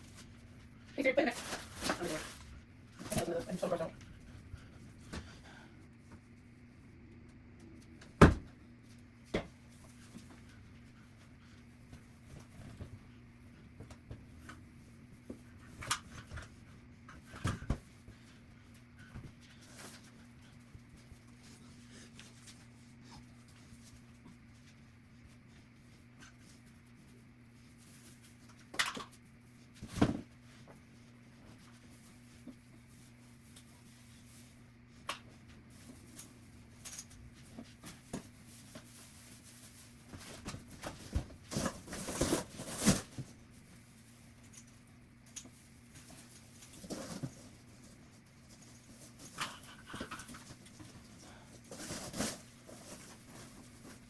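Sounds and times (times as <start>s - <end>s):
objects being moved and clattering: 0.0s - 5.6s, 31.4s - 54.0s
faint steady hum: 0.0s - 54.0s.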